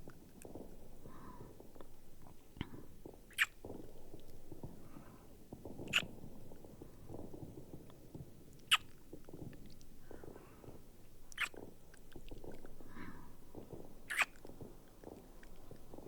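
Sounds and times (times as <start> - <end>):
muffled fireworks rumbling: 0.0 - 16.0
kissing lip smacks: 3.3 - 3.6, 8.7 - 8.9, 11.3 - 11.6, 14.1 - 14.4.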